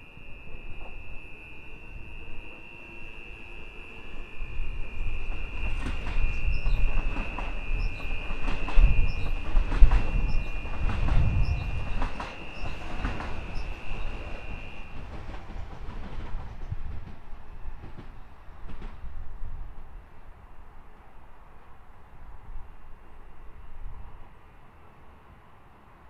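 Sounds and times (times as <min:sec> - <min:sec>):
high squeal: 0:00.0 - 0:15.0
train rumble: 0:00.0 - 0:26.0.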